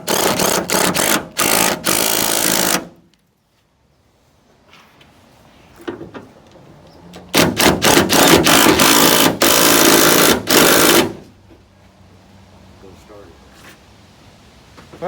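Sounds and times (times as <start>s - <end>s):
power drill running in bursts: 0.0s - 2.9s, 7.4s - 11.1s.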